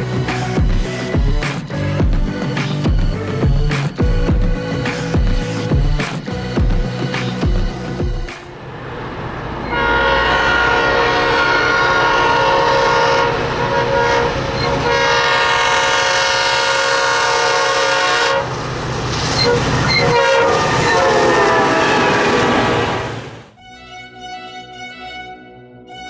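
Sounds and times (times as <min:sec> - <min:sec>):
train horn blasts: 0:09.0 - 0:18.7, 0:19.3 - 0:23.2.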